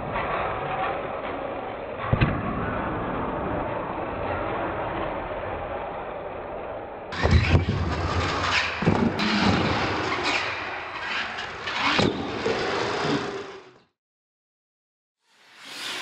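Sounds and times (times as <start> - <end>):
knocks and clatters: 7.1 - 12.8.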